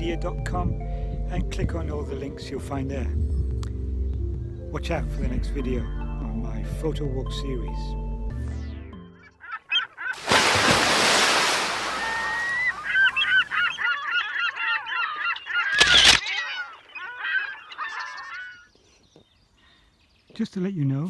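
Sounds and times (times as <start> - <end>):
waterfowl honking: 9.2 - 18.7.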